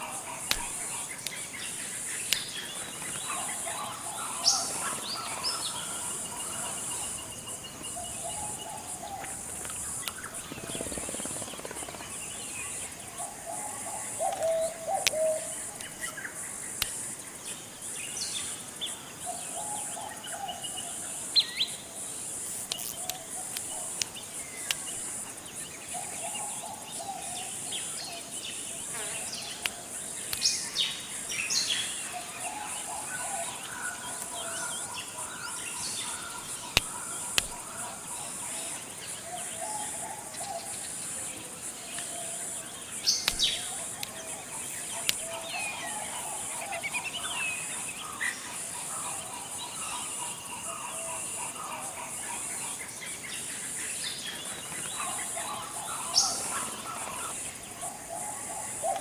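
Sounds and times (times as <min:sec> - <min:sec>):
birds chirping and warbling: 0:00.0 - 0:59.0
high insect drone: 0:00.0 - 0:59.0
sharp click: 0:00.4 - 0:01.4, 0:36.7 - 0:37.6, 0:43.2 - 0:44.1.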